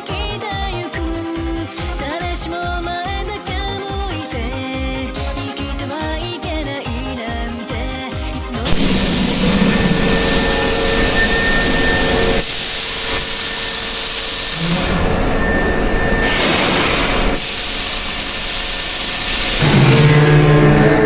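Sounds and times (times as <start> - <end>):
electric train rushing roar: 8.7 - 21.0.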